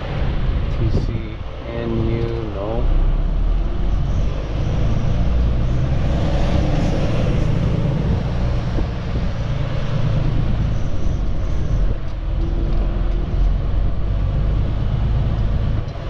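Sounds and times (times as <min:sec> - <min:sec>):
road and cab noise: 0:00.0 - 0:16.0.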